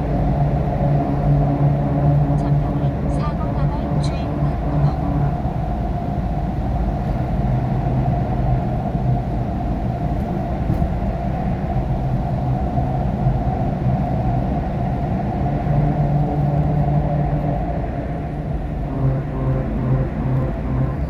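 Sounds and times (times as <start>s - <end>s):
low hum: 12.4s - 21.0s.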